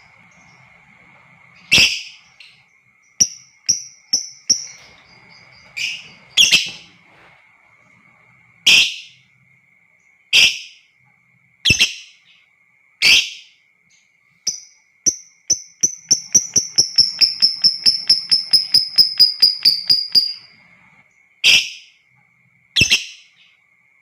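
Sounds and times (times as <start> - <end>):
lovebirds screeching and chirping: 0.0 - 2.6, 4.5 - 7.3
faint steady high tone: 0.0 - 11.4, 12.2 - 21.2.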